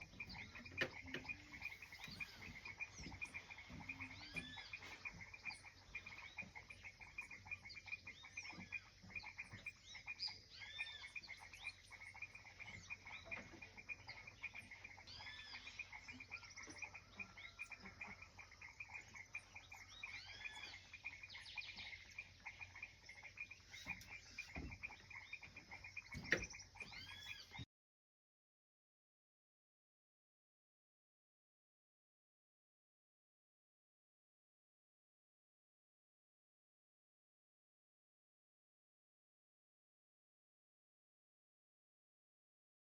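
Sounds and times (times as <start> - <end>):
rapid pulsing animal trill: 0.0 - 27.6.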